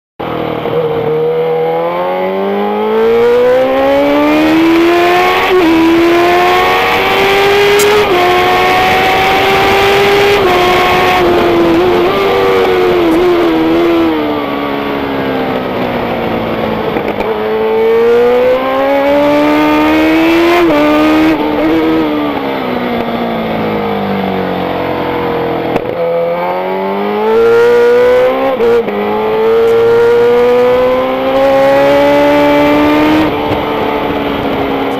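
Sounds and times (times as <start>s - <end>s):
racing motorcycle engine revving: 0.2s - 34.9s.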